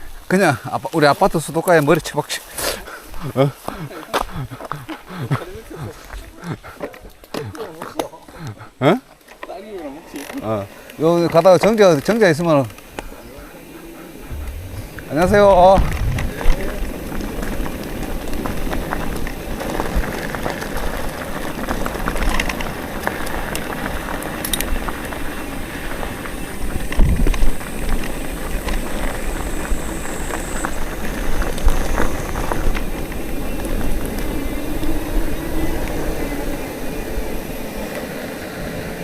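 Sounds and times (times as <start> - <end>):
bicycle clicks and rattles: 9.2 - 38.8
wind buffeting microphone: 11.8 - 39.0.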